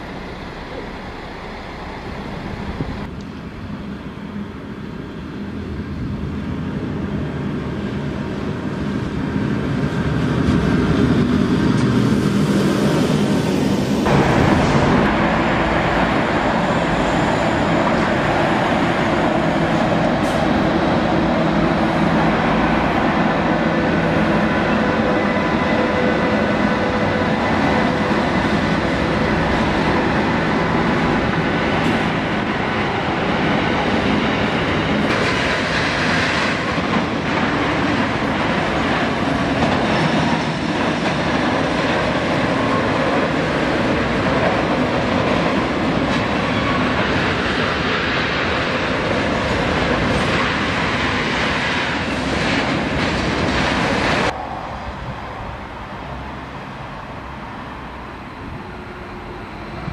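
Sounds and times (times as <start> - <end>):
electric locomotive passing: 0.0 - 59.9
train wheels clacking on rails: 9.6 - 54.6.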